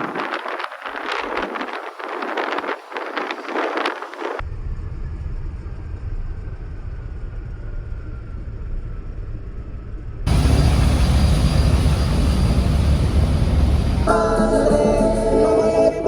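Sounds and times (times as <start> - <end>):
wind buffeting microphone: 0.0 - 4.4
low vehicle rumble: 4.4 - 15.7.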